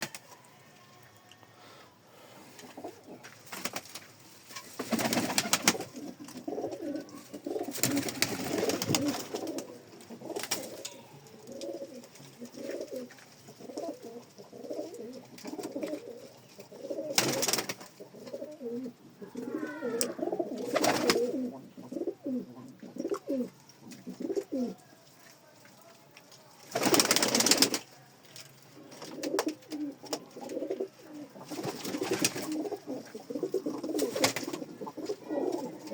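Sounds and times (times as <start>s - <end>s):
pigeons cooing: 4.9s - 24.8s, 28.8s - 35.9s.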